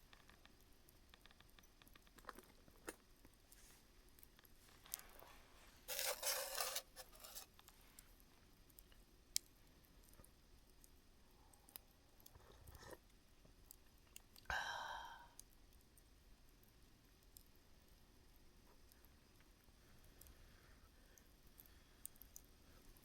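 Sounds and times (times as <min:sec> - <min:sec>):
embers crackling and popping: 0:00.0 - 0:11.0.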